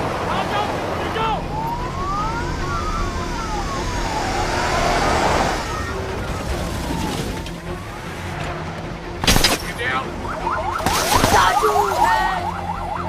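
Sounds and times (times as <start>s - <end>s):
rumble of engines and traffic: 0.0s - 13.0s
sirens wailing: 0.1s - 13.0s.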